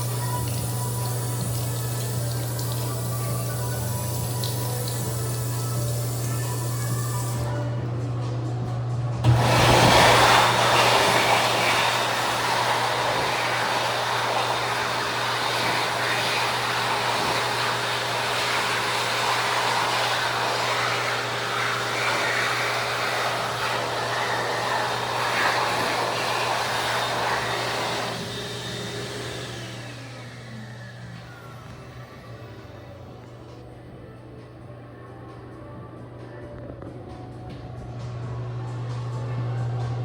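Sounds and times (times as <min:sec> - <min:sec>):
hand dryer blowing air: 0:00.0 - 0:07.7, 0:09.2 - 0:33.6
motor winding down whine: 0:09.2 - 0:33.7.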